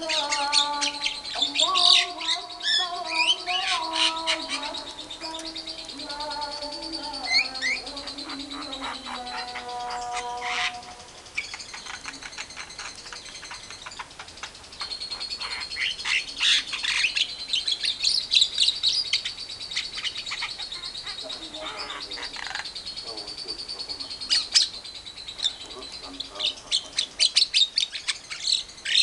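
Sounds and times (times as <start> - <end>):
caged birds chattering: 0.0 - 29.0.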